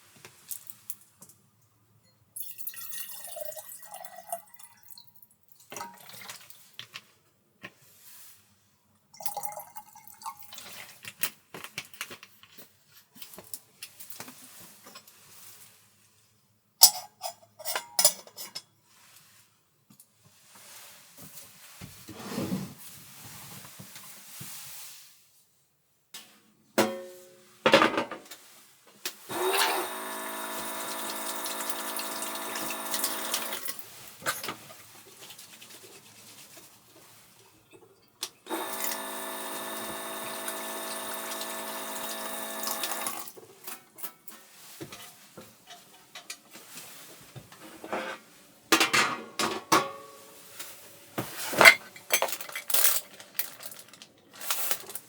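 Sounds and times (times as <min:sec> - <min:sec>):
kitchen things clicking and knocking: 0:16.8 - 0:18.7, 0:26.2 - 0:28.4, 0:29.3 - 0:35.7, 0:37.6 - 0:46.5, 0:47.5 - 0:50.2, 0:51.2 - 0:55.0
small appliance motor buzzing: 0:29.3 - 0:33.8, 0:38.5 - 0:43.3.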